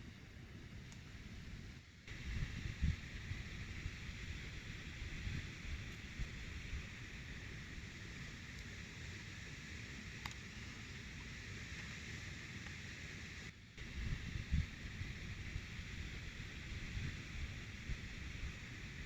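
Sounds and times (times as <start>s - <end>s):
steady hiss: 0.0s - 19.0s
wind rumble on microphone: 1.2s - 7.9s, 13.8s - 19.0s
faint click: 10.2s - 10.4s.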